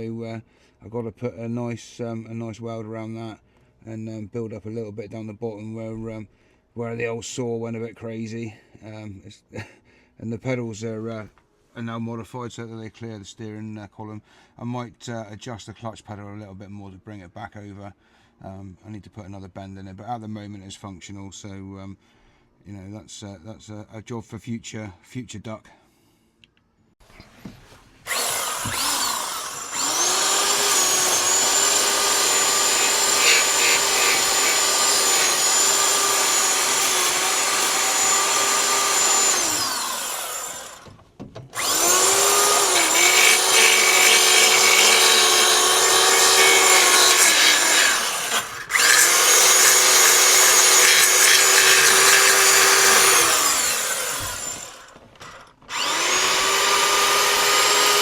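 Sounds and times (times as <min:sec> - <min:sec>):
belt sander sanding steel: 0:28.1 - 0:40.9, 0:41.6 - 0:58.0.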